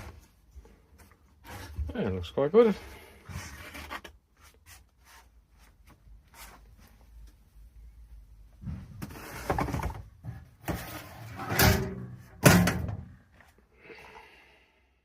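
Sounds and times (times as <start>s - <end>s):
wooden box scraping and knocking: 8.7s - 11.2s.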